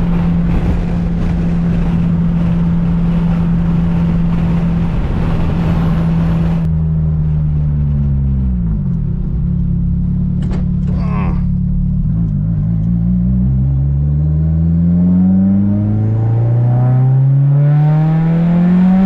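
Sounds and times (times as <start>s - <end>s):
road and wind hiss: 0.0s - 9.2s
car engine running: 0.0s - 14.0s.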